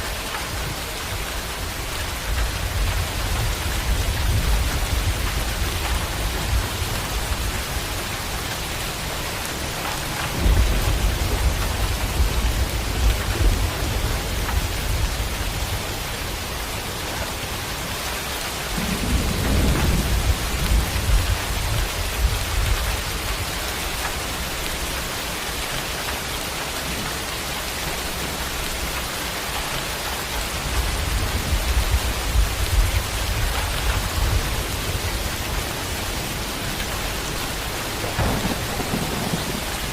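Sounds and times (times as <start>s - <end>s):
heavy rain hissing: 0.0s - 39.9s
thunder rumbling: 0.4s - 25.8s, 29.8s - 39.9s.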